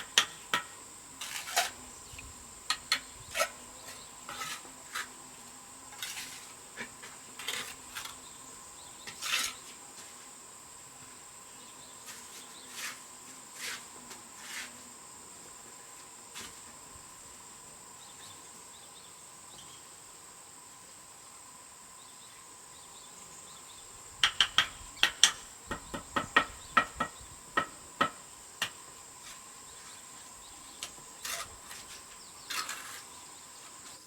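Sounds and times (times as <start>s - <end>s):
metal tool on brick: 30.9s - 33.2s.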